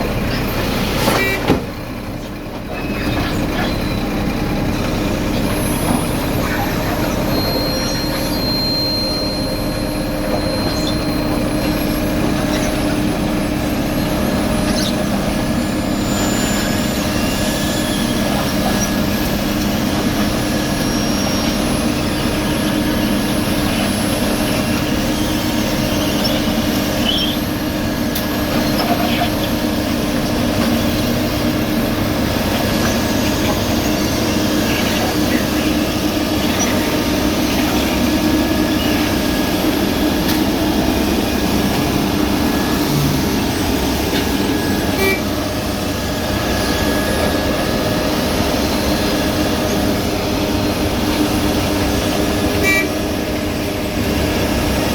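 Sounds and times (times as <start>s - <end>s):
diesel engines droning: 0.0s - 54.9s
faint high squeaks and clicks: 2.2s - 13.0s, 14.5s - 15.2s, 16.1s - 31.7s.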